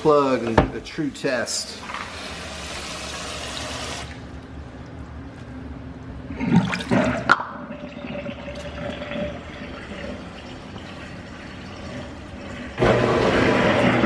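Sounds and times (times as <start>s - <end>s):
water rushing down drain: 6.3s - 14.0s.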